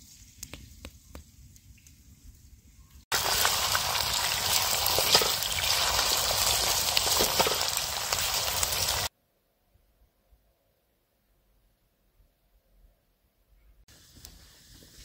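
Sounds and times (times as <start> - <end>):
oil crackles: 3.1 - 9.1
potatoes frying in hot oil: 3.1 - 9.1.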